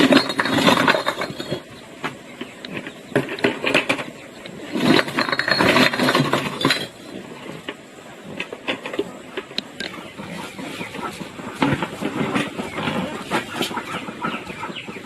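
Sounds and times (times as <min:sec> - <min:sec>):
hard objects clinking and knocking: 0:00.0 - 0:01.8, 0:04.7 - 0:07.1.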